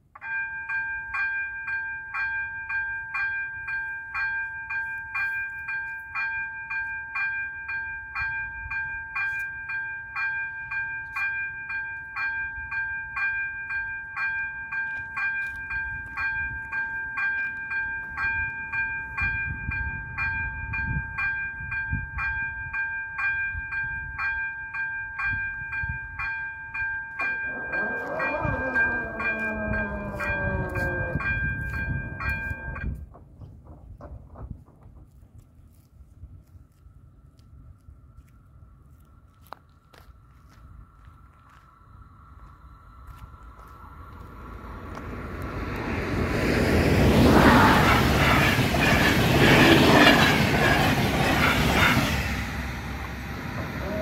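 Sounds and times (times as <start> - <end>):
level crossing warning bell ringing: 0.0 - 33.1
passing train falling tones: 0.1 - 35.9, 41.0 - 54.0
train rumble: 1.6 - 36.6, 38.9 - 54.0.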